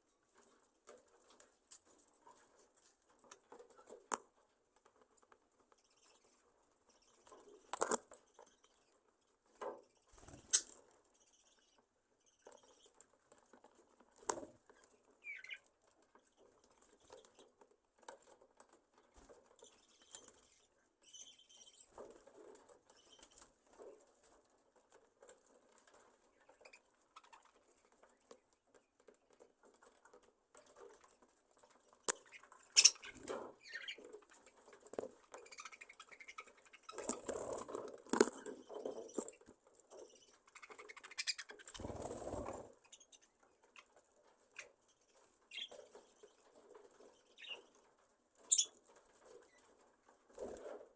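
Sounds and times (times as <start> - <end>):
budgerigars chirping: 32.3 - 34.0, 40.1 - 41.7.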